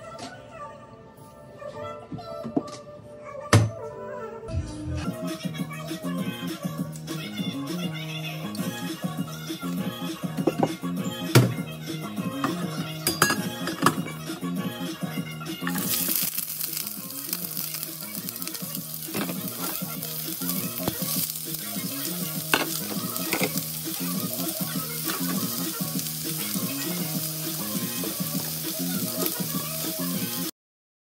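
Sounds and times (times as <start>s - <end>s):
vegetables sizzling in oil: 15.6s - 30.5s.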